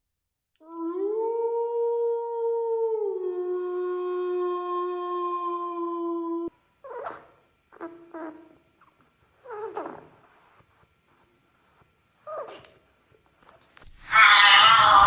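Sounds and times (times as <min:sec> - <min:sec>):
whimpering animal calls: 0:06.3 - 0:12.7, 0:13.5 - 0:15.0.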